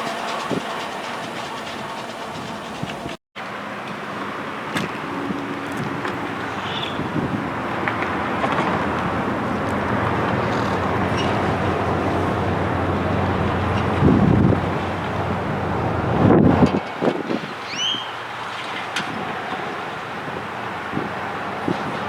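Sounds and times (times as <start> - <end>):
vehicle rumble with low hum: 0.0 - 17.0.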